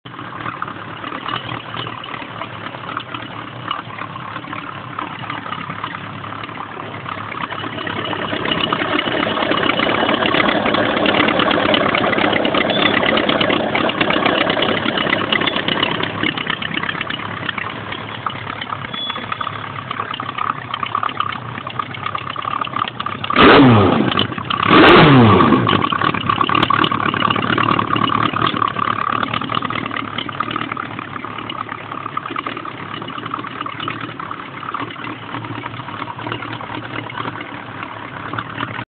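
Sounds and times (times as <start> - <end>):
motorcycle engine idling: 0.1 - 38.9.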